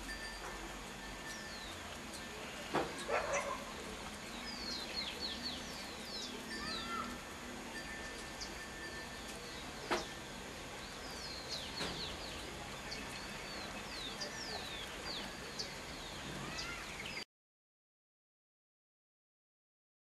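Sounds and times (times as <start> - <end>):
background hiss: 0.0 - 17.2
birds whistling calls: 1.1 - 7.2, 7.8 - 17.2.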